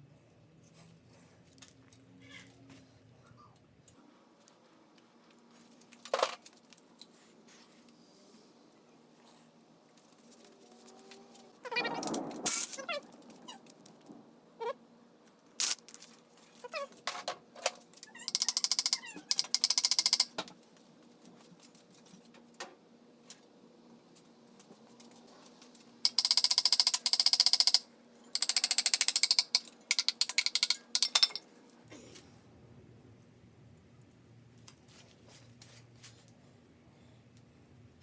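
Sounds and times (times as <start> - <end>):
socket ratchet clicking: 18.3 - 20.3, 26.1 - 31.4
metallic clicks: 18.3 - 20.4, 26.1 - 31.4.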